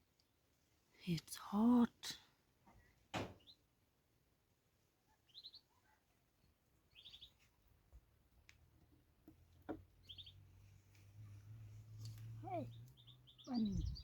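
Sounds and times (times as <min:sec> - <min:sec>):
faint bird chirping: 0:05.0 - 0:07.8, 0:09.6 - 0:14.0.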